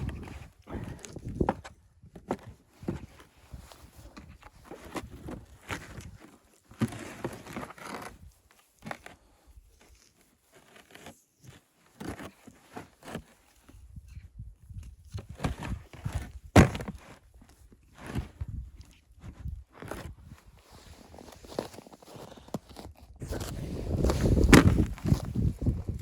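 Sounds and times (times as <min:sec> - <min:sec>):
crunching and rustling: 0:15.3 - 0:26.0.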